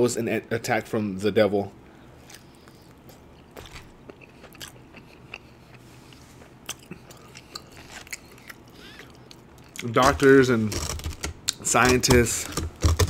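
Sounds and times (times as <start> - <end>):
person chewing food: 2.2 - 10.2
mouth clicks and smacks: 6.6 - 9.9.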